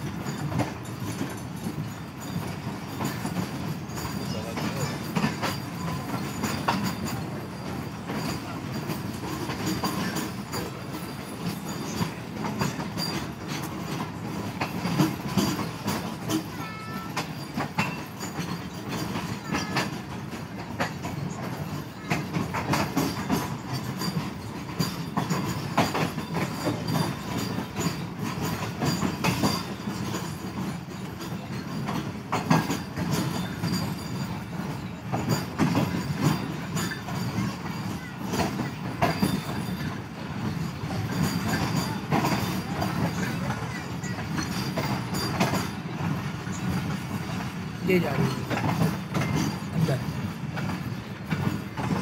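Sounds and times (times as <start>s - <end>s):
train rumbling along track: 0.0s - 52.0s
wheels clacking over rail joints: 0.0s - 52.0s.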